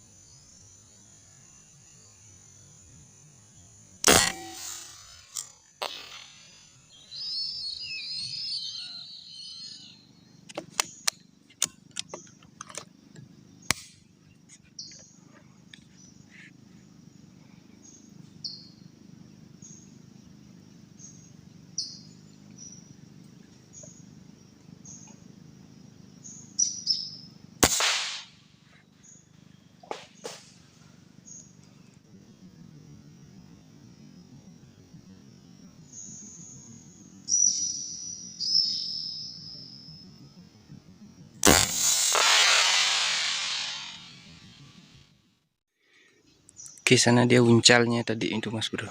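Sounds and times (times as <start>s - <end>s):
rifle shot: 4.0s - 6.5s, 27.6s - 28.5s, 41.4s - 44.6s
sharp clicks: 27.6s - 28.3s.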